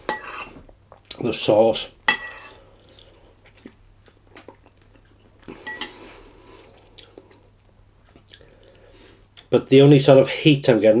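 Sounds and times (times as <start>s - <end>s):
cutlery clinking on a dish: 0.1s - 0.6s, 2.1s - 2.6s, 5.6s - 6.0s.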